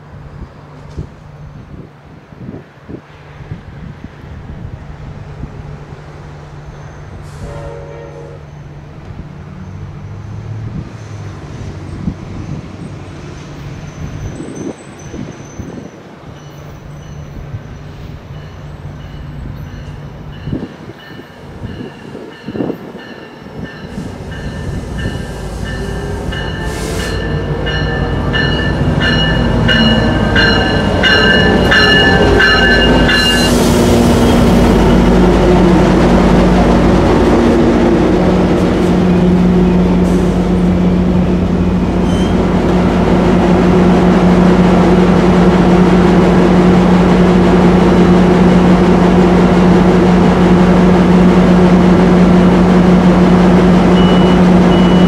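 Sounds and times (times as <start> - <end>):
diesel locomotive engine humming: 0.0 - 55.0
brake squealing: 42.0 - 42.6.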